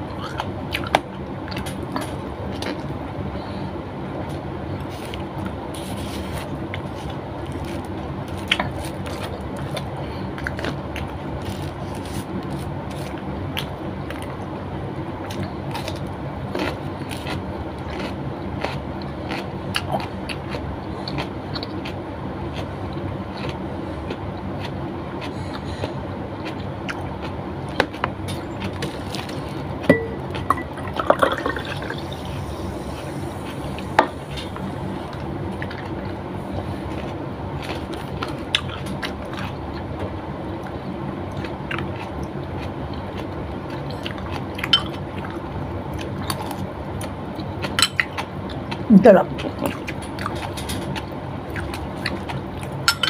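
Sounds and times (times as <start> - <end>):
steady background hum: 0.0 - 53.0
wet chewing and mouth smacks: 40.6 - 52.9.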